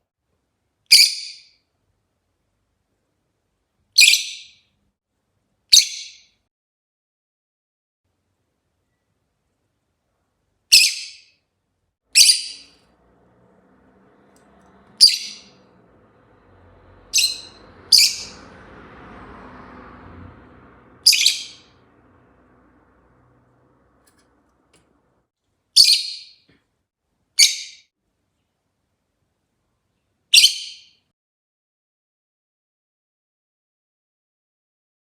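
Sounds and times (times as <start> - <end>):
lovebird chirping: 4.0 - 4.6, 5.7 - 6.3, 10.7 - 11.3, 12.2 - 12.8, 14.9 - 15.6, 17.0 - 18.5, 21.0 - 21.7, 25.8 - 26.4, 27.4 - 27.8, 30.3 - 31.0.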